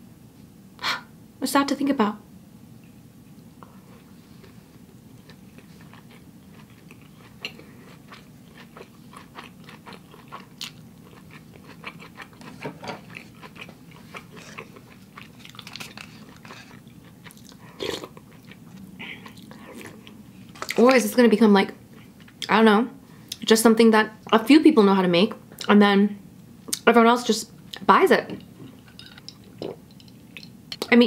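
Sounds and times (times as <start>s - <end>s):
wet chewing mouth sounds: 5.2s - 20.8s.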